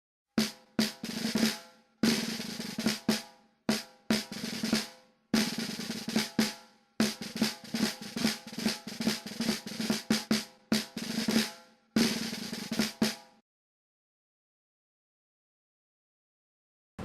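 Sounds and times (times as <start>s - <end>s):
snare drum hits and rolls: 0.4s - 13.4s.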